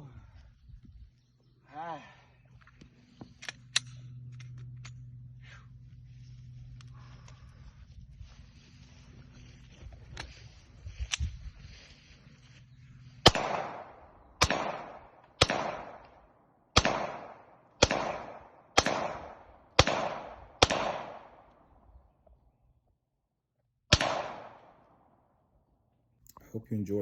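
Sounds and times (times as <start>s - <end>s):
rifle shots with echo: 13.2s - 21.5s, 23.9s - 25.0s.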